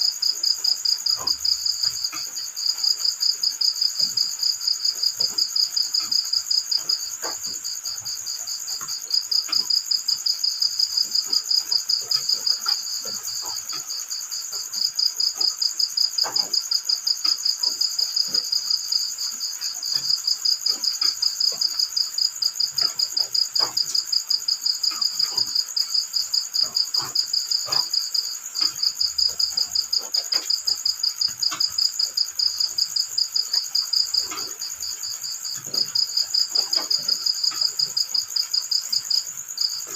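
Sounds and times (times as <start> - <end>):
cricket chirping: 0.0 - 39.9
faint ticks: 0.1 - 39.9.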